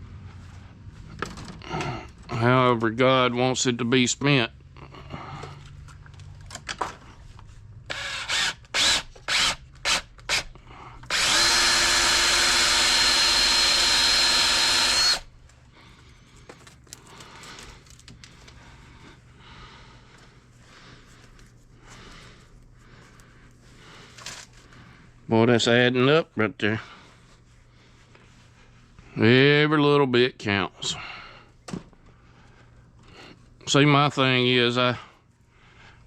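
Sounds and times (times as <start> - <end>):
power drill whining: 7.9 - 15.3.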